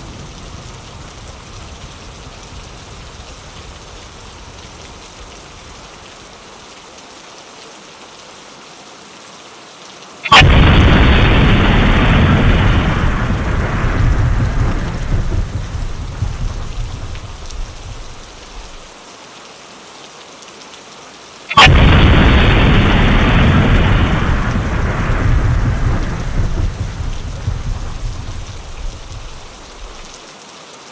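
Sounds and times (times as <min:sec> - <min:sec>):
steady rain: 0:00.0 - 0:30.9
thunderclaps: 0:10.3 - 0:18.9, 0:21.5 - 0:30.2.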